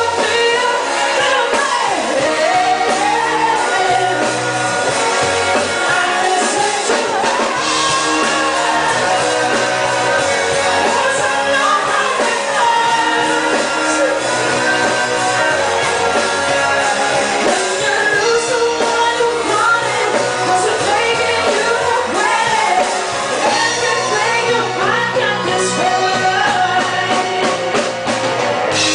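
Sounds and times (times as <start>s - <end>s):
person singing: 0.0s - 27.9s
live rock band playing: 0.0s - 28.9s.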